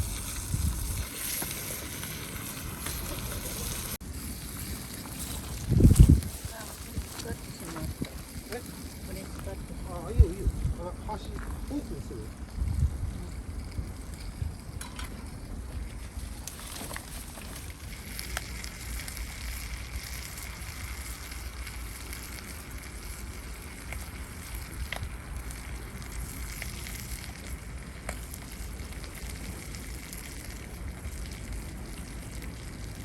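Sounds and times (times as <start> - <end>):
wind rumble on microphone: 0.0 - 2.9, 5.2 - 16.4
wood fire hissing: 0.0 - 33.0.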